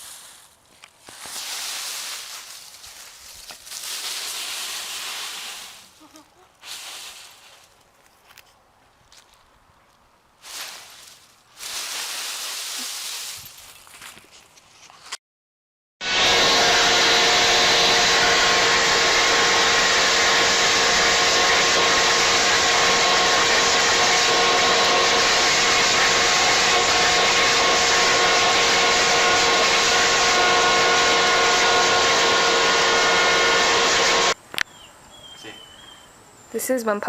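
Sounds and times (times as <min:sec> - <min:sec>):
electric motor whirring: 0:16.0 - 0:34.4.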